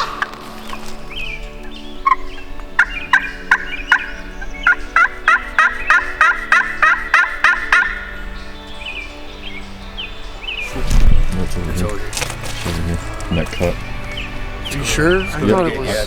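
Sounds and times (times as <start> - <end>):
turkey yelps: 0.0 - 0.4, 5.0 - 8.1.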